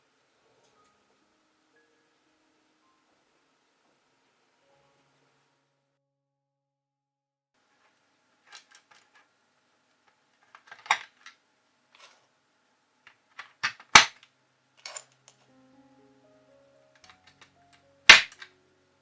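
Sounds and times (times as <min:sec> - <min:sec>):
plastic keyboard parts clicking: 0:10.6 - 0:11.3, 0:13.4 - 0:14.2, 0:14.8 - 0:15.4, 0:17.0 - 0:17.5, 0:18.1 - 0:18.5.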